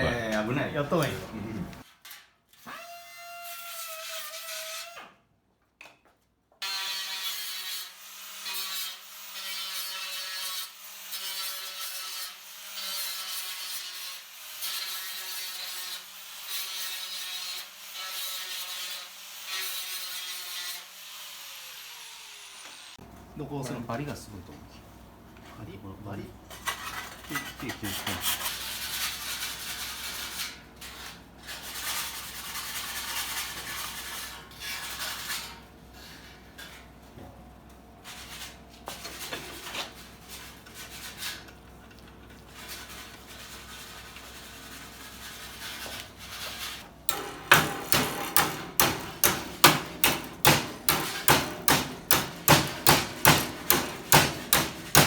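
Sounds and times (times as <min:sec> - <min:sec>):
filing sheet metal edges: 0:06.6 - 0:20.8, 0:42.6 - 0:55.0
hammering on metal: 0:47.1 - 0:55.0.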